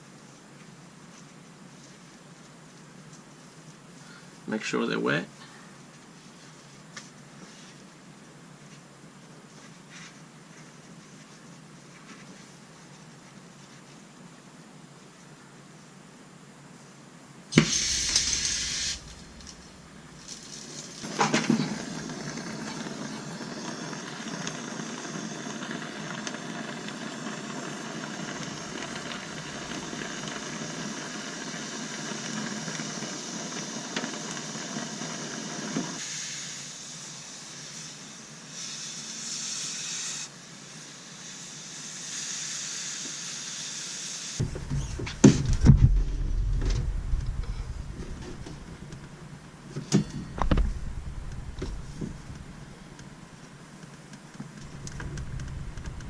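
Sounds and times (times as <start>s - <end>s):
gas torch hissing: 17.5s - 45.2s.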